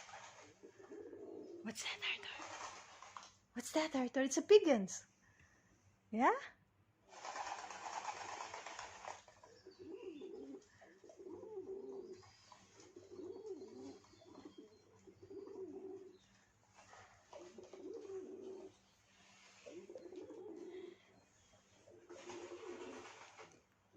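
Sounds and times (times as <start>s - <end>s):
pigeon cooing: 0.0s - 1.6s, 9.4s - 18.8s, 19.4s - 23.5s.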